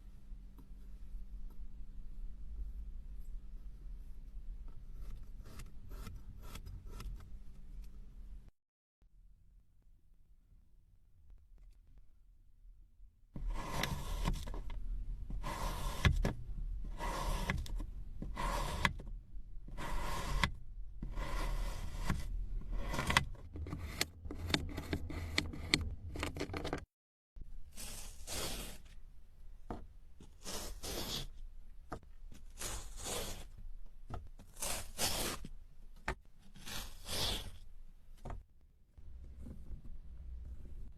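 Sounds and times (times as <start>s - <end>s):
tool scraping kinetic sand: 13.4s - 14.6s, 15.2s - 19.0s, 19.6s - 26.5s, 27.6s - 29.0s, 30.2s - 31.5s, 32.4s - 33.6s, 34.5s - 35.5s, 36.4s - 37.7s.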